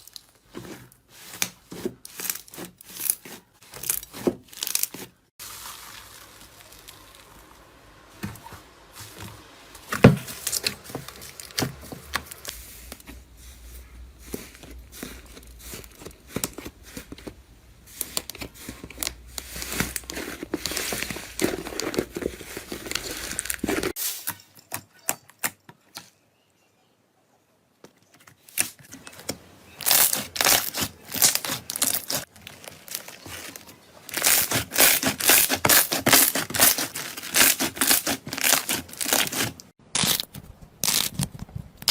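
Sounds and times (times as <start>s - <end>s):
crunchy material crushed by hand: 29.7s - 41.9s.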